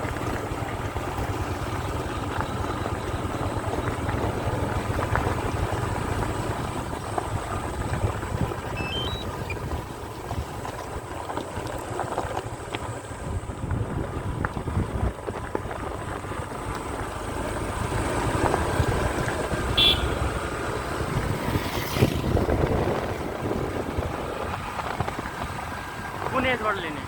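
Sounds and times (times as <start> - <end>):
motorcycle rumble: 0.0 - 27.0
wind buffeting microphone: 2.8 - 26.4
short high chirp: 8.8 - 9.5.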